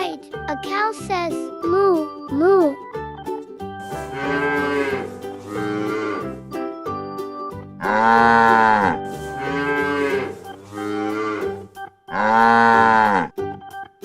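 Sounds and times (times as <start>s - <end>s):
cow mooing: 4.0s - 6.4s, 7.8s - 13.4s.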